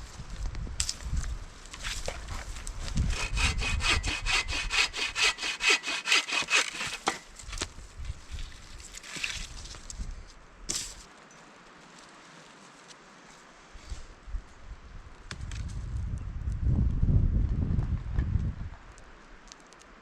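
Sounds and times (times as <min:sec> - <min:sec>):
saw strokes through wood: 0:03.0 - 0:07.2
wood cracking: 0:04.1 - 0:07.7.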